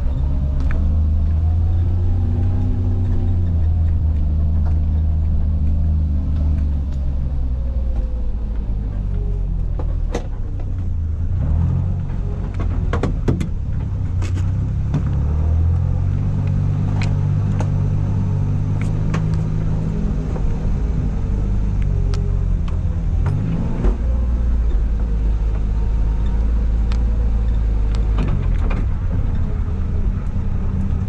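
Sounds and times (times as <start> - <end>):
sharp clicks and knocks: 12.0 - 31.0.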